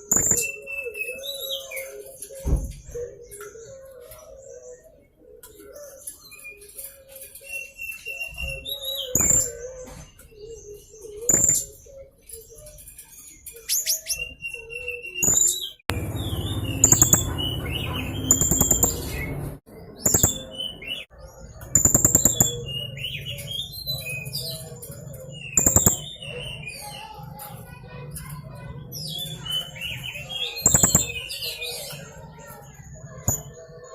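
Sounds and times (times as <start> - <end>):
parrot chirping and trilling: 12.6 - 33.8.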